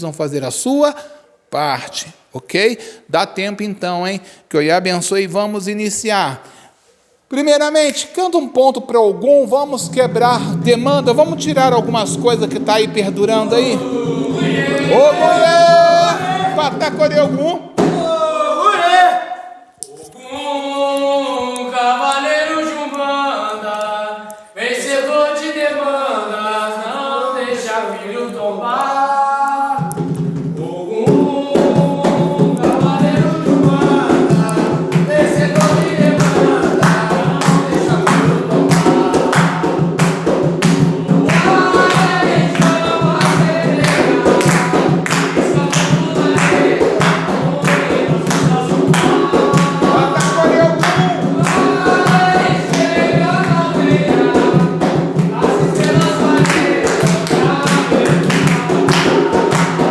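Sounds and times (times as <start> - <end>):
voices singing: 7.3 - 59.9
hand percussion beat: 9.6 - 18.3, 29.8 - 59.9.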